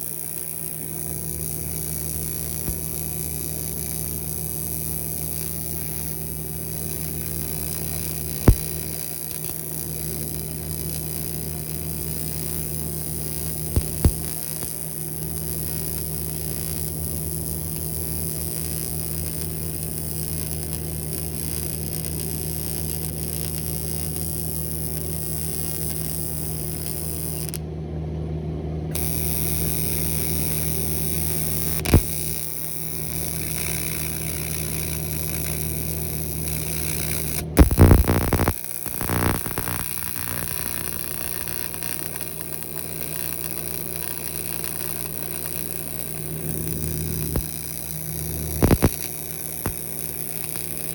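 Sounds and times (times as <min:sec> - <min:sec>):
welder humming and hissing: 0:00.0 - 0:27.6, 0:28.9 - 0:50.9
sharp click: 0:08.4 - 0:08.7.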